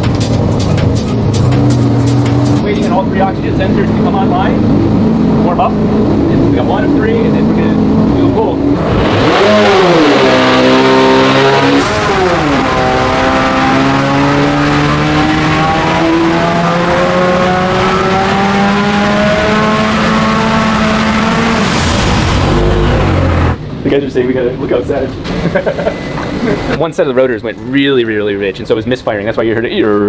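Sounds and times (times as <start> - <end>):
engine misfiring: 0.0 - 4.7, 25.1 - 26.8.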